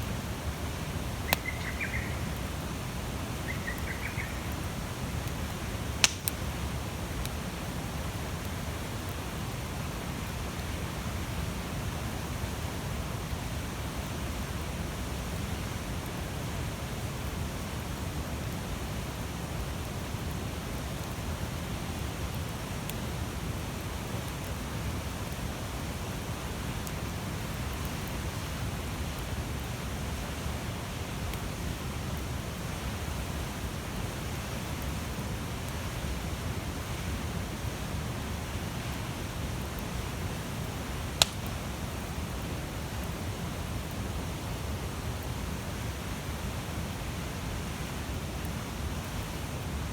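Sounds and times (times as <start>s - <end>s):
fire crackling pops: 0.9s - 7.5s, 41.1s - 41.7s
campfire flames rushing: 4.0s - 13.6s, 30.5s - 43.4s.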